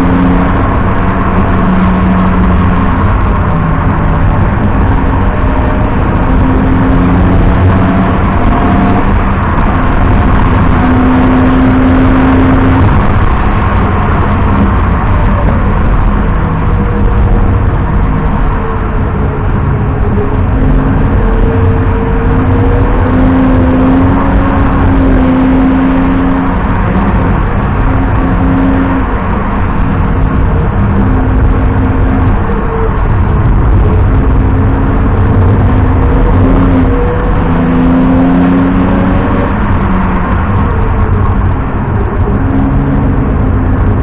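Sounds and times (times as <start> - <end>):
car engine accelerating: 0.0 - 44.0
road and wind noise: 0.0 - 44.0.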